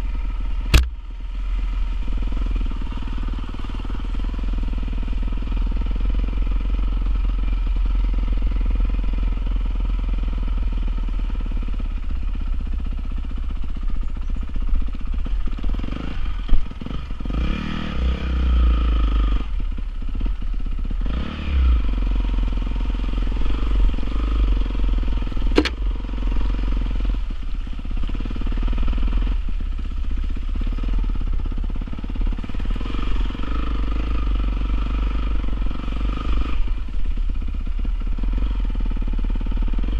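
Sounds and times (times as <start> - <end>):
motorcycle engine revving: 0.0 - 39.9
sharp click: 0.7 - 1.0, 25.5 - 25.8.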